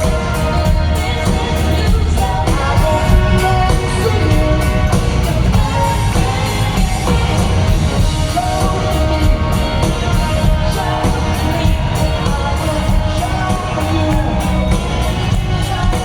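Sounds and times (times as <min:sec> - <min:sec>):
live rock band: 0:00.0 - 0:16.0
person singing: 0:00.0 - 0:16.0.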